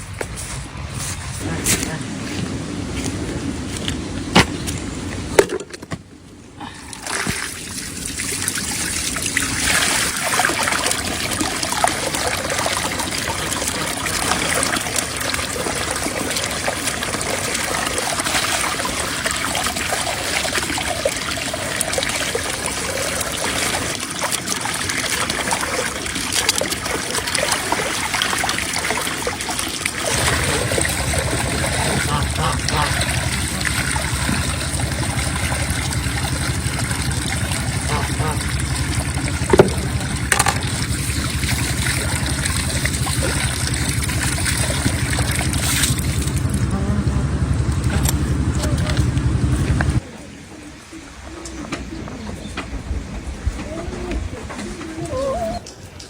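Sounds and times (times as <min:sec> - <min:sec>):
water running and trickling: 0:06.7 - 0:50.0.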